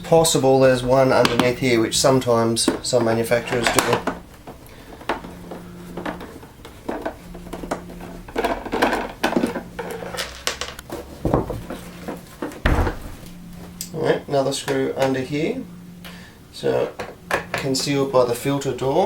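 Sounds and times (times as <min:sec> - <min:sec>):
heavy thump: 0:11.2 - 0:11.8, 0:12.5 - 0:13.7.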